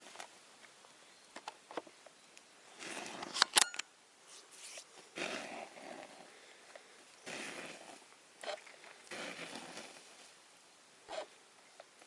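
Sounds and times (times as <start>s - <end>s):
rustling: 4.2s - 10.5s.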